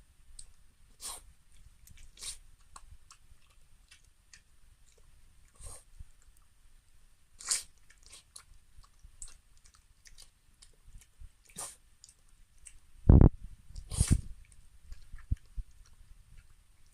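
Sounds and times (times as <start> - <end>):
dog crunching food: 7.4 - 12.8.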